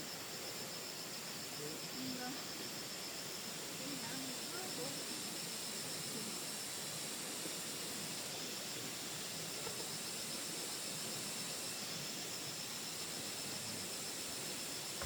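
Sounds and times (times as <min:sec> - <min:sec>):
steady hissing noise: 0:00.0 - 0:15.0.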